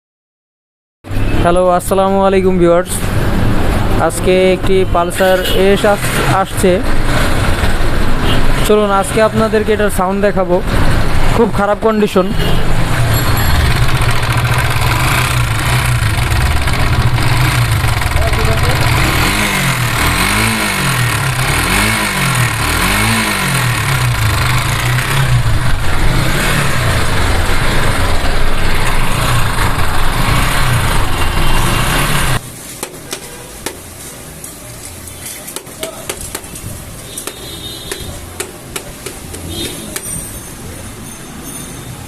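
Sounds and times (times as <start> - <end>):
motorcycle engine revving roughly: 12.6 - 32.4
faint engine ticking: 13.6 - 19.3.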